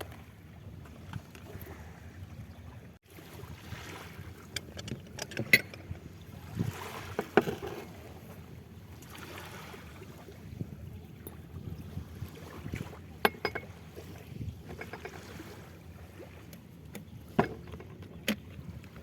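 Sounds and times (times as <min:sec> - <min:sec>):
wind rumbling on microphone: 0:00.0 - 0:19.0
sharp clicks and knocks: 0:04.6 - 0:05.8.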